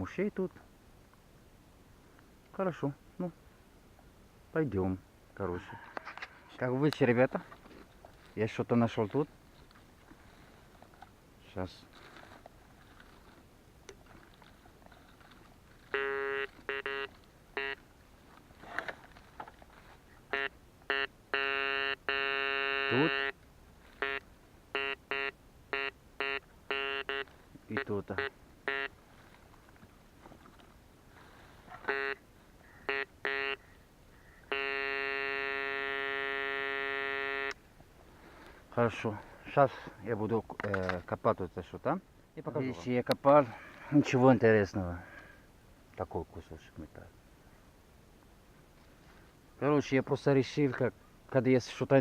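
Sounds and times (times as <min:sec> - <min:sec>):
metal detector beeps: 0:15.9 - 0:17.8, 0:20.3 - 0:23.4, 0:24.0 - 0:24.2, 0:24.8 - 0:28.9, 0:31.9 - 0:32.2, 0:32.9 - 0:33.6, 0:34.5 - 0:37.6.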